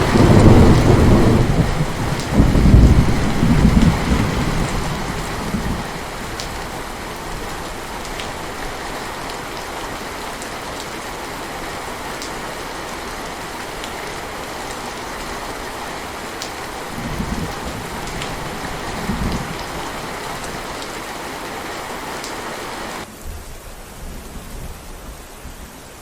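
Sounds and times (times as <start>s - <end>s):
low rumbles of thunder: 0.0s - 7.7s, 16.9s - 20.6s
heavy rain pouring: 0.0s - 26.0s.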